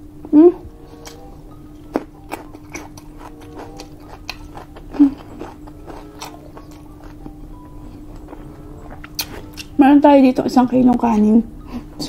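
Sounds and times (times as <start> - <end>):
faint steady hum: 0.0 - 12.0
person chewing and crunching: 0.8 - 9.8.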